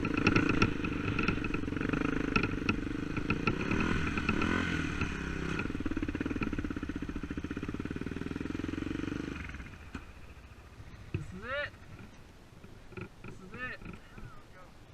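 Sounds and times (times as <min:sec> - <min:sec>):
sharp clattering knocks: 0:00.0 - 0:05.2, 0:11.1 - 0:14.4
dirt bike engine running: 0:00.0 - 0:14.7.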